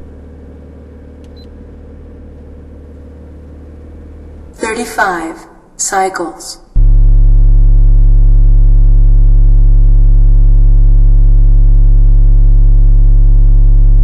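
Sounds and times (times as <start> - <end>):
loud subwoofer bass tone: 0.0 - 4.6, 6.8 - 14.0.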